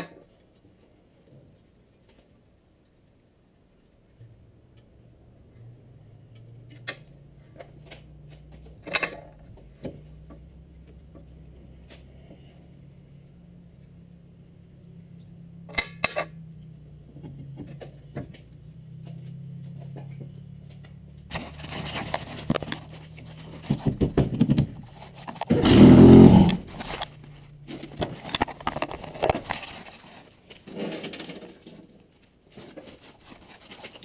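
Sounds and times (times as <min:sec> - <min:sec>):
car engine idling and revving: 0:05.7 - 0:23.8, 0:25.4 - 0:27.8
engine backfire pops: 0:25.4 - 0:27.0.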